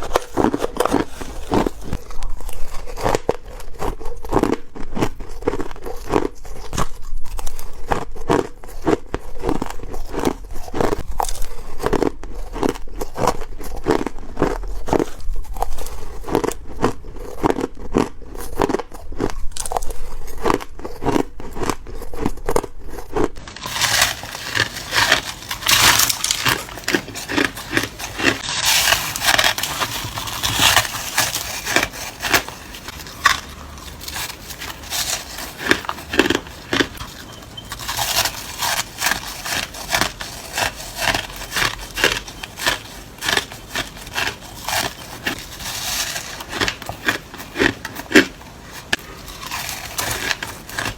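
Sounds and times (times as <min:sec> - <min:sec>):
ice being crunched: 0:00.0 - 0:03.6, 0:23.4 - 0:50.9.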